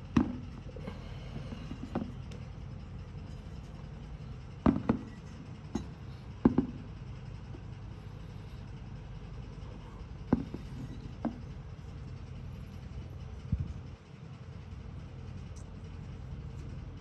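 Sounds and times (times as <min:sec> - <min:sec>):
steady low hum: 0:00.0 - 0:17.0
handling knocks and taps: 0:00.1 - 0:00.7, 0:04.6 - 0:06.8, 0:10.3 - 0:11.6.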